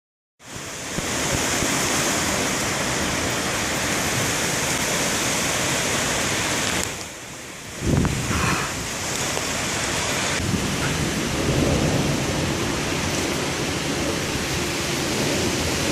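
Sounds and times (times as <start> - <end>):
heavy rain: 0.4 - 15.9
strong wind: 0.4 - 15.9
thunder rumble: 7.7 - 15.9.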